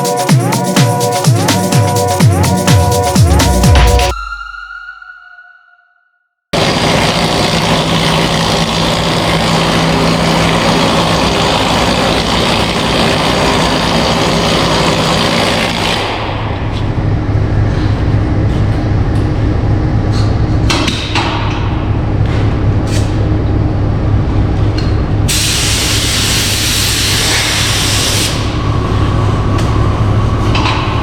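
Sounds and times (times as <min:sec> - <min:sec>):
heavy low hum: 0:00.0 - 0:04.2
dense industrial hiss: 0:25.3 - 0:28.6.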